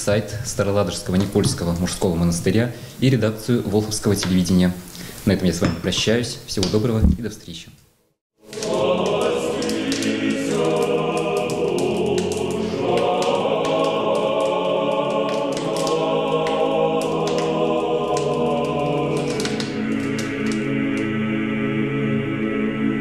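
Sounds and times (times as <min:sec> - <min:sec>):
choir singing sustained chords: 0:08.4 - 0:23.0.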